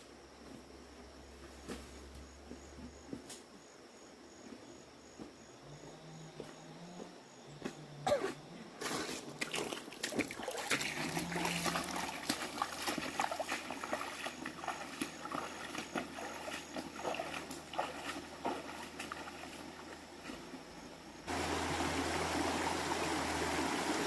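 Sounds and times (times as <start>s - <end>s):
splashing and knocking: 8.8s - 20.5s
faint running water: 9.0s - 24.0s.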